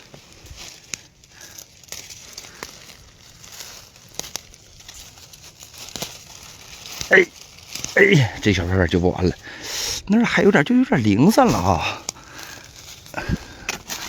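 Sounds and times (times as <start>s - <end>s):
stems snapping: 0.0s - 8.6s, 11.5s - 14.0s
plants rustling: 0.0s - 14.0s.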